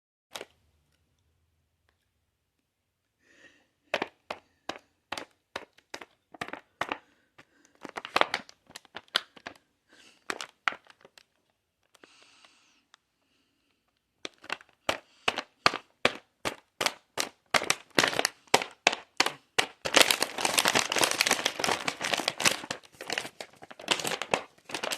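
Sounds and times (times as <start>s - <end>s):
cookie package crinkling: 3.9s - 12.9s, 13.8s - 24.9s.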